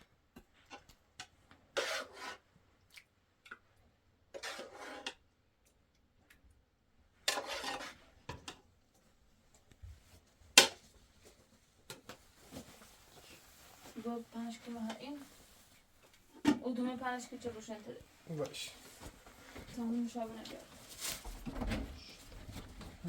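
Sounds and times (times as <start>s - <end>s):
rasping scrapes on hard surface: 1.8s - 2.5s, 4.3s - 5.2s, 7.3s - 8.0s.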